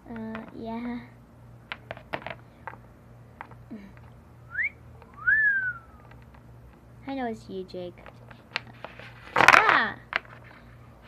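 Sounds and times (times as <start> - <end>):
person wolf-whistling: 4.5 - 6.1.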